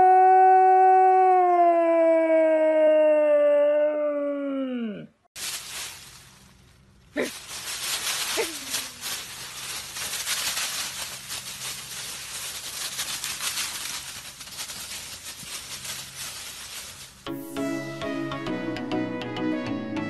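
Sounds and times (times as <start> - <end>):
dog paws crunching dry leaves: 5.4 - 17.3.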